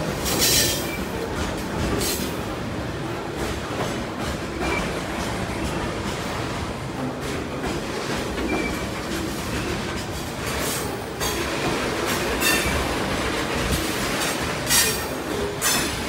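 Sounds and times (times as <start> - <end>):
train wheels rumbling on rail: 0.0 - 16.0
train wheel screeches: 0.2 - 2.3, 8.4 - 11.4, 12.1 - 12.9, 13.6 - 16.0.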